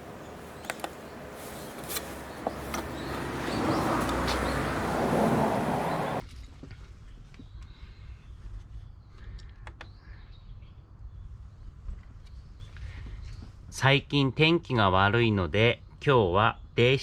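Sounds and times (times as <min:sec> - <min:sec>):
road vehicle passing: 0:00.0 - 0:06.2.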